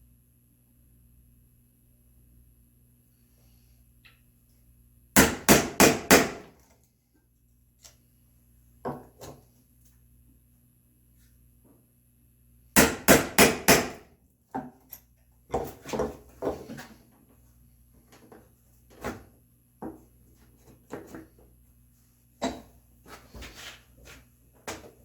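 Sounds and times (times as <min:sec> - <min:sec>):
mallet striking chisel in wood: 0:05.2 - 0:06.5, 0:12.8 - 0:14.0.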